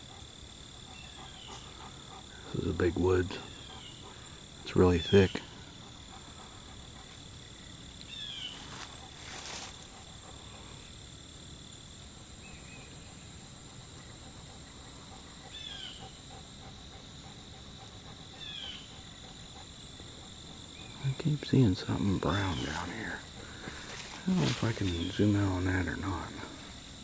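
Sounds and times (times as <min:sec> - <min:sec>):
crickets and insects trilling: 0:00.0 - 0:27.0.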